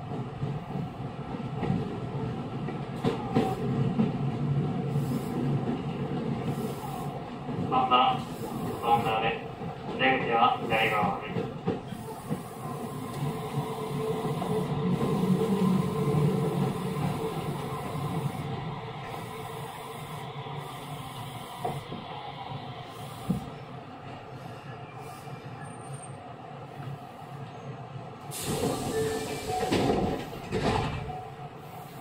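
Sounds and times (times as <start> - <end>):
train motor and wheel noise: 0.0 - 32.0.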